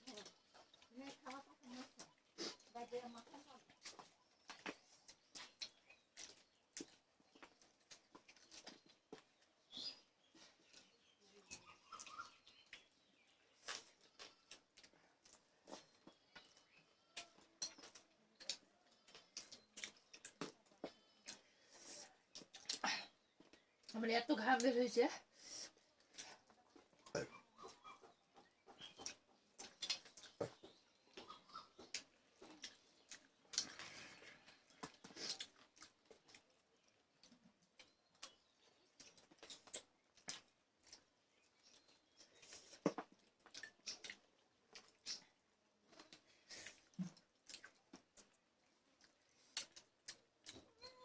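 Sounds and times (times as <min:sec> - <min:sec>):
eating by hand from plates: 0:00.1 - 0:23.9, 0:25.3 - 0:51.0
chewing: 0:00.1 - 0:24.0, 0:25.6 - 0:51.0
food scooped from plates: 0:10.6 - 0:22.8.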